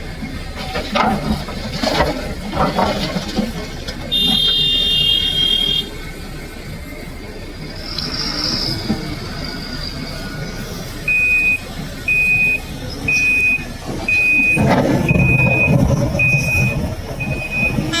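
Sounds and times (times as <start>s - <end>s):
heavy vehicle engine running: 0.0s - 18.0s
reversing alarm beeping: 4.0s - 6.2s, 11.0s - 18.0s.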